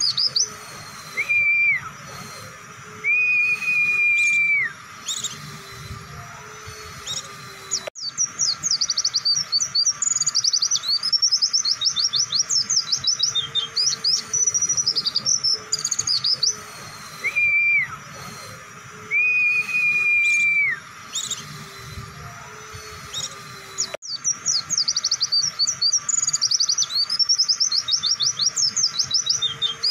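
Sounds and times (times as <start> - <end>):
bird high chirping notes: 0.0 - 29.9
bird long whistled notes: 0.0 - 29.9.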